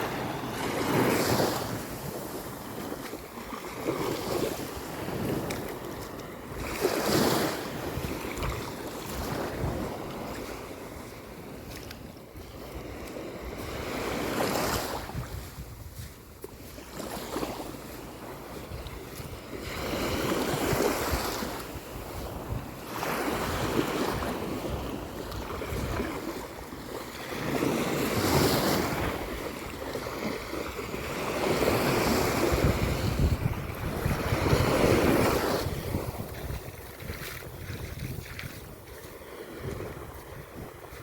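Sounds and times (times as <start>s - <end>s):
wind buffeting microphone: 0.0s - 16.8s, 18.5s - 41.0s
sea waves washing onto beach: 0.0s - 41.0s.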